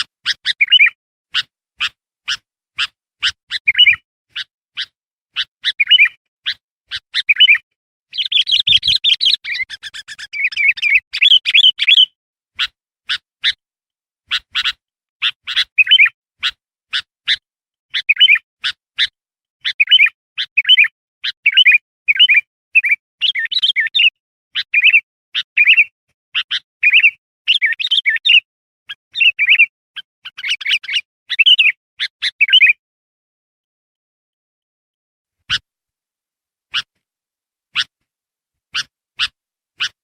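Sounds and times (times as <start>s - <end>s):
bulbul chirping: 3.2s - 12.8s.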